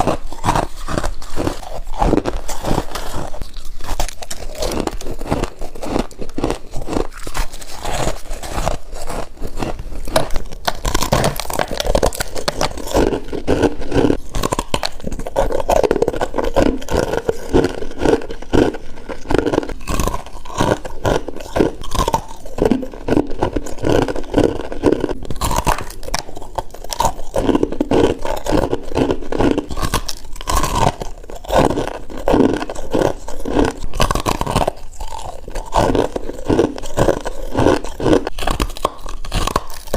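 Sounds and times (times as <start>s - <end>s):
person chewing icy frost: 0.0s - 39.9s.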